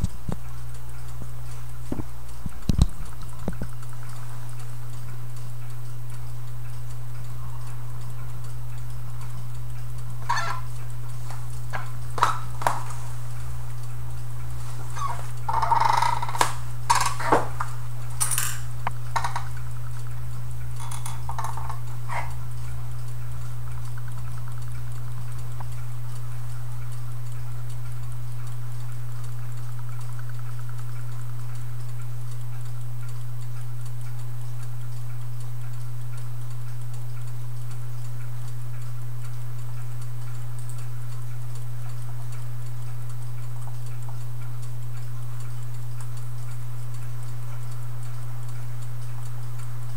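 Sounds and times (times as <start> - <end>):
clock ticking: 0.0 - 49.9
low steady hum: 0.0 - 49.9
sharp clicks and knocks: 1.9 - 3.9, 15.0 - 19.6, 20.8 - 21.8.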